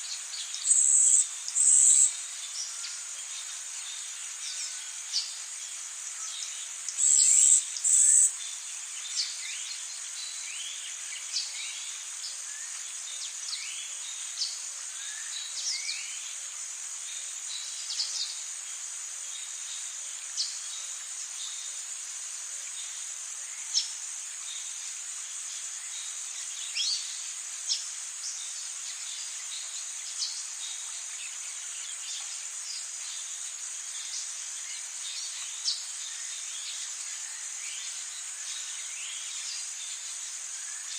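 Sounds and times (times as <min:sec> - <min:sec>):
high-pitched insect drone: 0:00.0 - 0:40.9.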